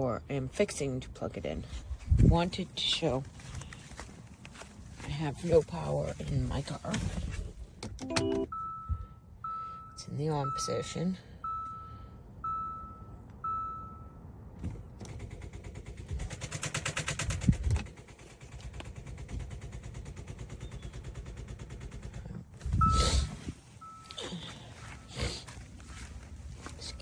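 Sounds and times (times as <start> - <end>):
jump starter beeps: 8.0 - 14.4, 22.7 - 25.1.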